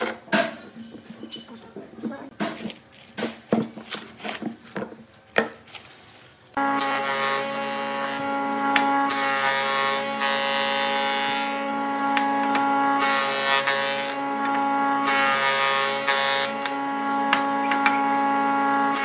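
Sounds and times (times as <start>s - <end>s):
wood lathe motor hum: 6.6s - 19.0s.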